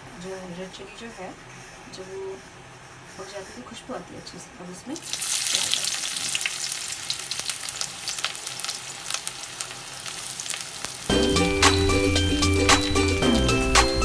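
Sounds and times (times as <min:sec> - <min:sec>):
food sizzling and popping in oil: 0:05.0 - 0:14.0
background music: 0:11.1 - 0:14.0.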